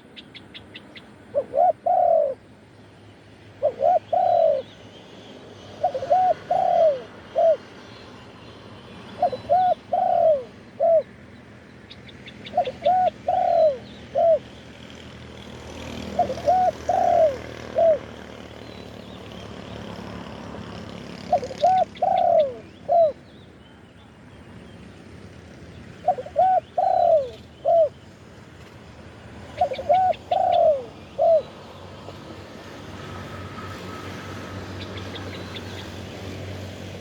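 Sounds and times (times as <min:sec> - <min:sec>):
dove cooing: 0:01.3 - 0:02.4, 0:03.6 - 0:04.7, 0:05.8 - 0:07.7, 0:09.2 - 0:11.2, 0:12.4 - 0:14.6, 0:15.8 - 0:18.4, 0:21.1 - 0:23.2, 0:26.0 - 0:28.1, 0:29.4 - 0:31.7.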